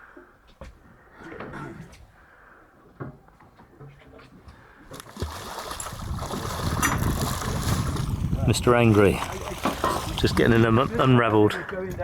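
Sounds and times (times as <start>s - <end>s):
sea noise: 4.8s - 11.7s
rushing wind: 5.2s - 11.2s.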